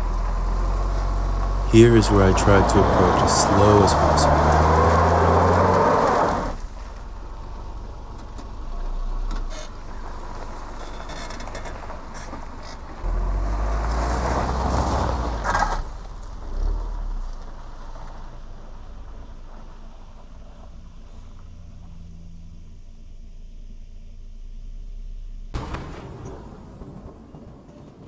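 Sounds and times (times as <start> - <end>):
car engine low rumble: 0.0 - 25.7
clicks and knocks from tyres: 8.0 - 13.1, 14.0 - 22.0.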